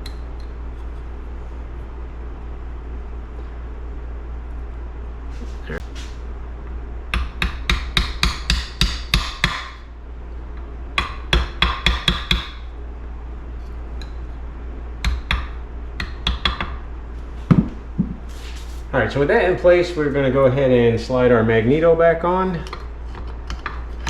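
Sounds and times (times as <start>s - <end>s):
small hammer tapping on metal: 11.0s - 12.6s, 15.0s - 16.8s.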